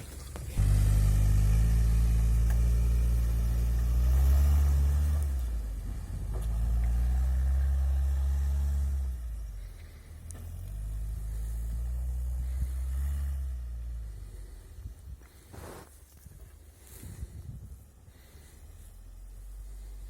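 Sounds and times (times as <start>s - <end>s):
vehicle engine revving under load: 0.3s - 15.9s.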